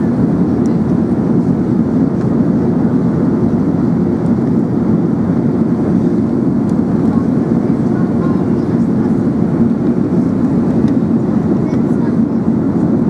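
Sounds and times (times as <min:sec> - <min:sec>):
airplane cabin engine drone: 0:00.0 - 0:13.0.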